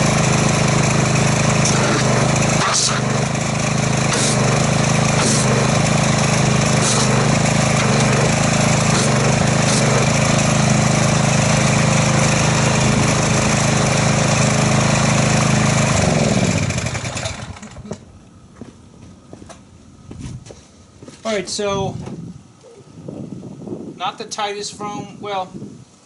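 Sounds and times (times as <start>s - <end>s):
pressure washer engine running: 0.0s - 18.0s
spray hissing: 4.1s - 4.4s, 6.8s - 7.2s, 8.9s - 10.0s.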